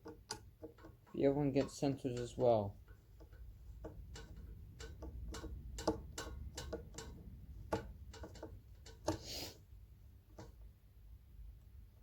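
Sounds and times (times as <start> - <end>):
screwdriver clicks and taps: 0.0 - 9.2
brief scrape: 9.2 - 9.6.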